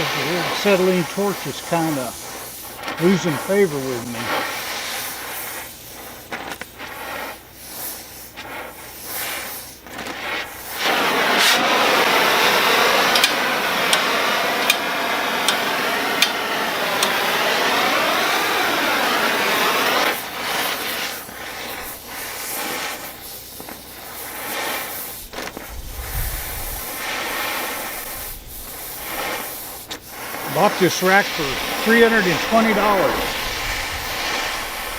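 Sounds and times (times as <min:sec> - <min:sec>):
gas torch hissing: 0:00.0 - 0:34.9.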